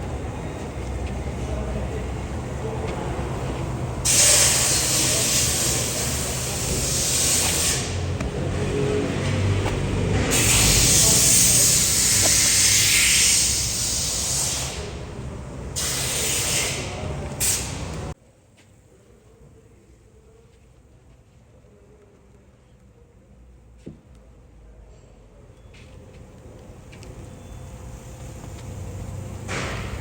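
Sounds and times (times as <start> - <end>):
pressure washer spraying water: 4.0 - 8.5, 10.2 - 14.8
low running rumble: 4.9 - 12.6.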